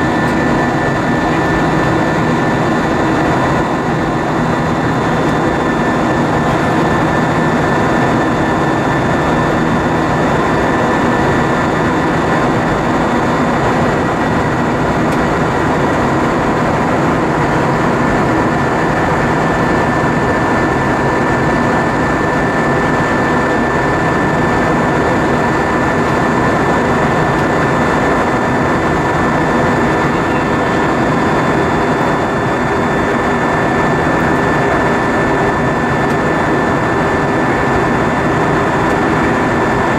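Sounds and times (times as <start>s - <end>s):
airplane cabin engine rush: 0.0s - 39.9s
constant high whine: 0.0s - 39.9s.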